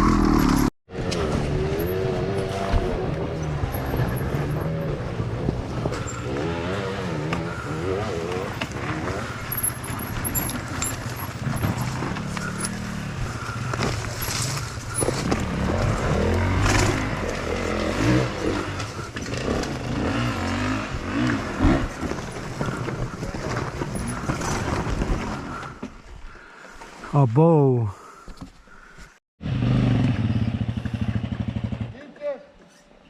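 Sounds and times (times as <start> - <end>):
dirt bike engine revving: 0.0 - 22.8, 29.4 - 32.0.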